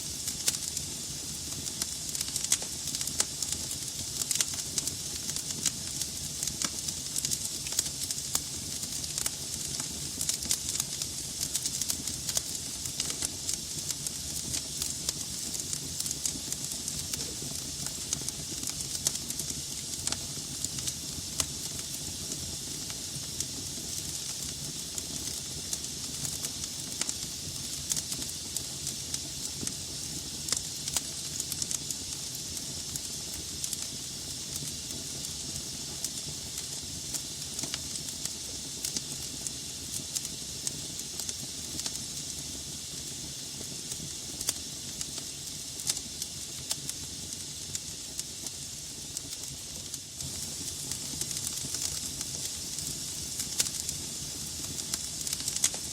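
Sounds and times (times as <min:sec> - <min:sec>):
hiss of flames: 0:00.0 - 0:55.9
logs crackling and popping: 0:16.6 - 0:21.6, 0:49.2 - 0:55.9.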